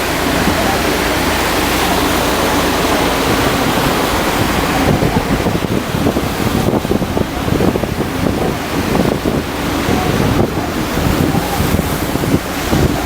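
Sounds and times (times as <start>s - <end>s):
water rushing around boat: 0.0s - 13.0s
wind buffeting microphone: 0.0s - 13.0s.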